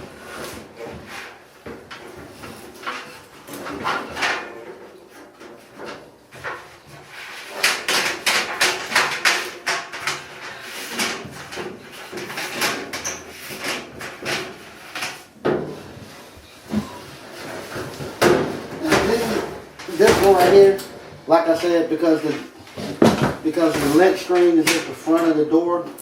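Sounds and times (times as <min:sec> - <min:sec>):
sheet metal knocks and scrapes: 0:00.2 - 0:25.4.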